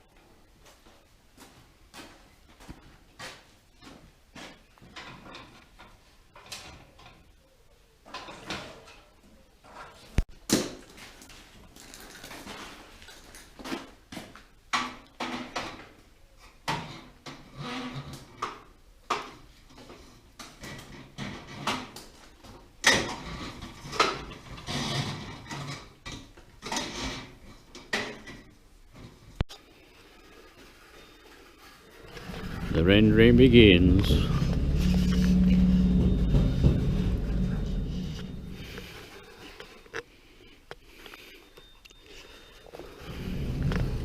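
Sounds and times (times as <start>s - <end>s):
scrapes and knocks of tools: 2.7s - 7.3s, 10.9s - 29.3s.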